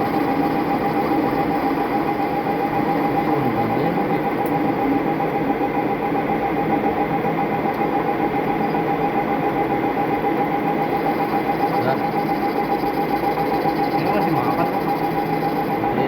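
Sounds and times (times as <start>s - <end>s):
metal lathe humming: 0.0s - 16.0s
steady whine: 0.0s - 16.0s.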